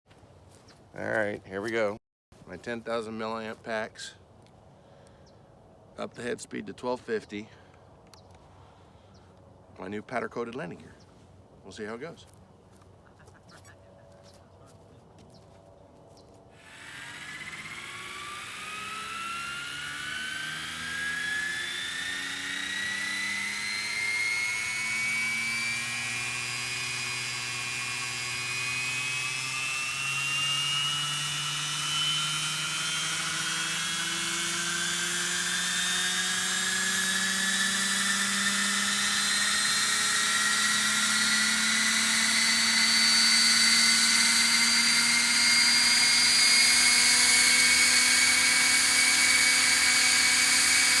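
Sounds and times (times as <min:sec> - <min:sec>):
model helicopter motor and rotor whine: 0:16.4 - 0:51.0.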